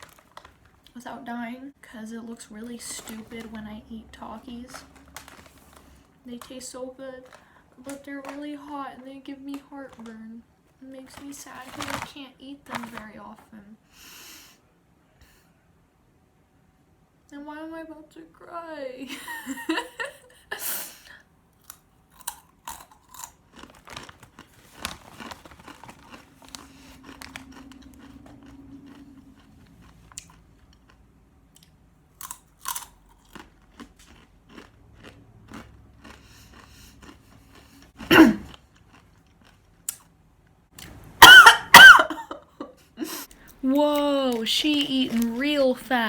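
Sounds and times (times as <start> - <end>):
crunching chips: 0.0 - 1.0, 4.2 - 10.2, 11.0 - 13.1, 21.6 - 40.2, 43.3 - 46.0
person coughing: 38.0 - 38.6, 41.2 - 43.2.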